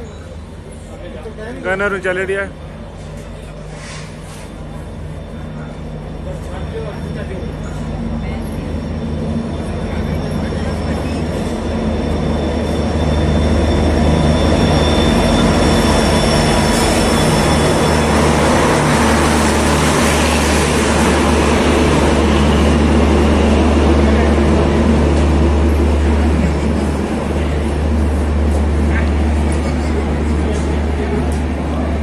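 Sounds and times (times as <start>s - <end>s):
diesel locomotive running: 0.0s - 32.0s
train coaches rolling past: 0.0s - 32.0s.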